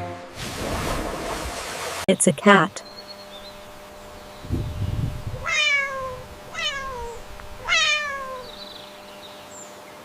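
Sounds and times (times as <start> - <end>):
short low rumble: 3.2 - 9.0
cat meowing: 5.2 - 8.9.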